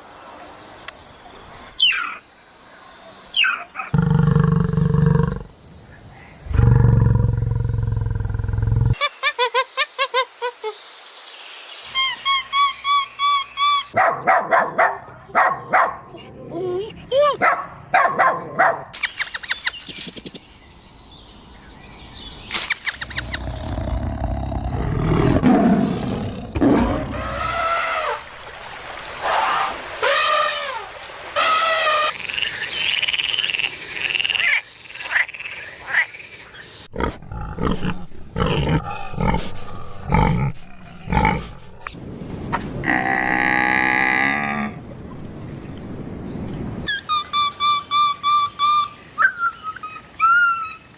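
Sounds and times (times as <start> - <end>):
animal growl: 3.9 - 5.5, 6.5 - 9.0, 23.0 - 27.6, 36.9 - 41.9
sharp animal clicks: 22.5 - 23.8
rising and falling animal calls: 22.7 - 28.3, 46.9 - 50.9
long harmonic animal call: 46.9 - 50.8.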